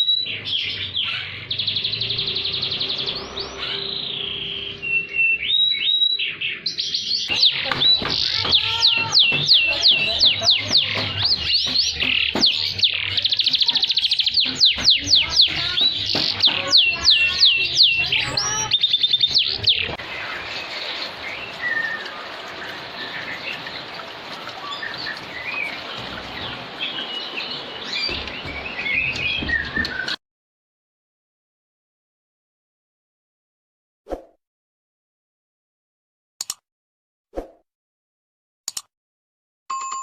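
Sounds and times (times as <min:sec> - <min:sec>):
canary singing: 0:00.0 - 0:30.2.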